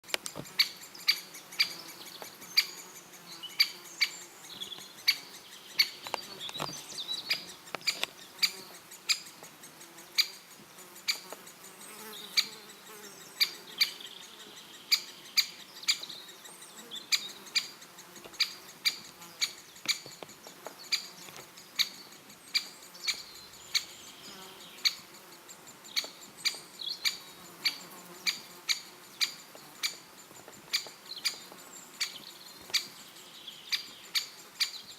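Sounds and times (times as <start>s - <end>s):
woodpecker sharp clicks: 7.7s - 9.4s.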